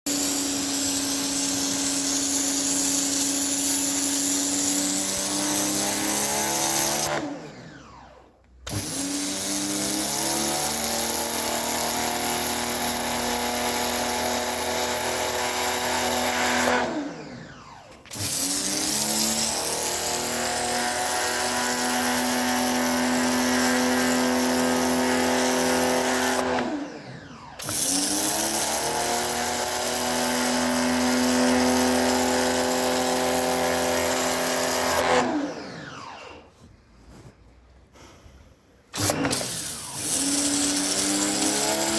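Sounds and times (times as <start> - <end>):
pressure washer hissing: 0.1 - 7.1.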